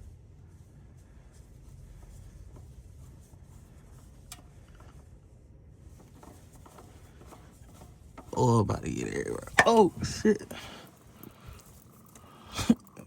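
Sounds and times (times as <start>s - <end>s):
oil filter scraping by hand: 5.8s - 12.2s.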